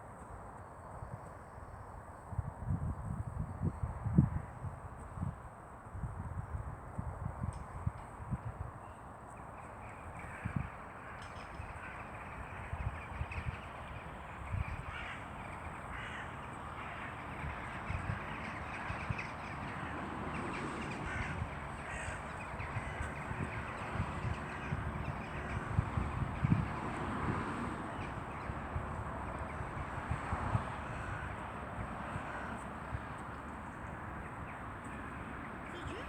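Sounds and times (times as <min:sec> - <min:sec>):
outdoor background noise: 0:00.0 - 0:36.0
crows cawing: 0:14.3 - 0:20.0, 0:20.7 - 0:25.6, 0:30.8 - 0:32.7.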